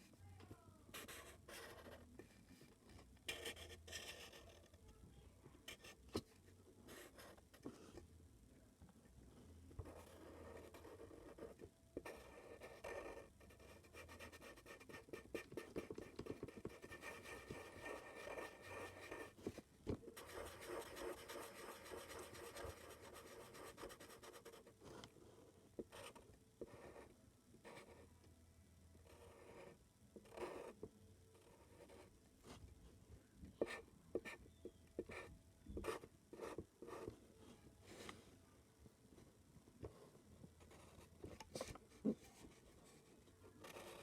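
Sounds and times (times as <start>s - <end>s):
drawing tool scratching on paper: 9.8s - 19.5s, 20.1s - 25.0s, 43.6s - 44.0s.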